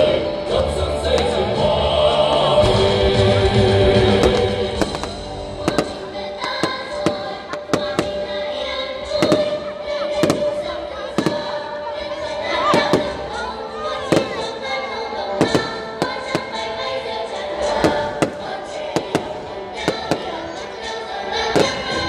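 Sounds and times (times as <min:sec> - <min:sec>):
choral music with band: 0:00.0 - 0:22.0
fireworks bangs: 0:04.0 - 0:11.8, 0:12.6 - 0:16.9, 0:17.6 - 0:22.0.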